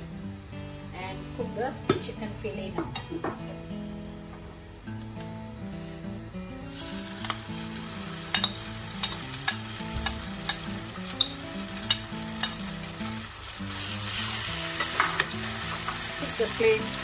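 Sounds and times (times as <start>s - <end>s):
chicken sizzling in hot oil: 5.0s - 17.0s
metal spoon clicking against bowl: 8.3s - 12.7s.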